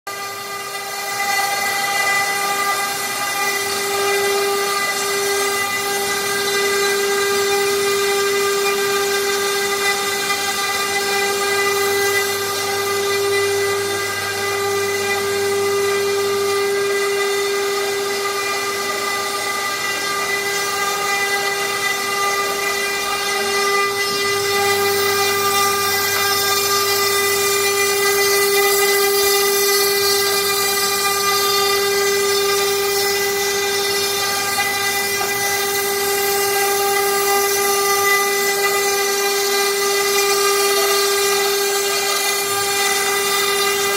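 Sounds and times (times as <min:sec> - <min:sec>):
machine whine: 0:00.1 - 0:43.9.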